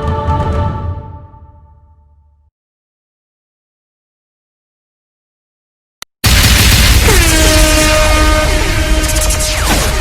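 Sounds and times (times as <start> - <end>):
sliding horn-like tones: 7.3 - 10.0.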